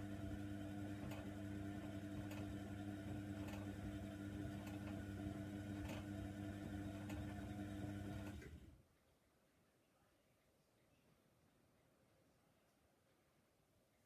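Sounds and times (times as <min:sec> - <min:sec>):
washer dryer motor hum: 0:00.0 - 0:08.8.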